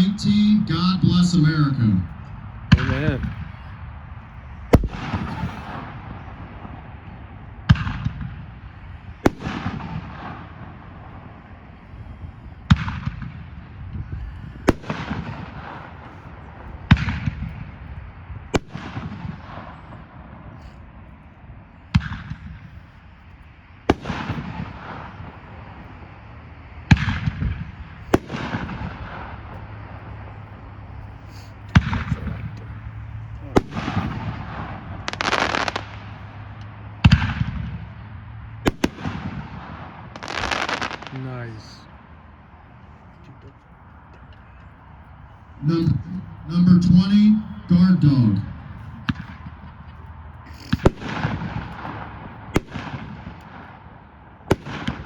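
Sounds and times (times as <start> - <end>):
firework booms with crackling tail: 2.7 - 3.7, 4.5 - 20.8, 21.9 - 22.8, 23.9 - 25.9, 26.9 - 30.4, 31.5 - 36.2, 37.0 - 38.0, 38.6 - 41.6, 48.4 - 49.6, 50.6 - 53.8, 54.5 - 55.0.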